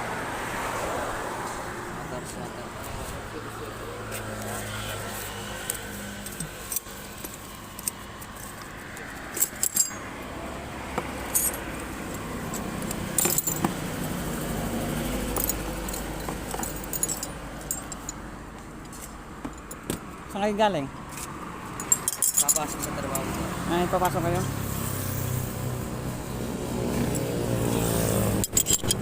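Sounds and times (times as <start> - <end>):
road traffic hum: 0.0 - 29.0
metal hand tools clinking: 5.6 - 10.2, 11.0 - 18.2, 21.1 - 24.4, 28.1 - 29.0.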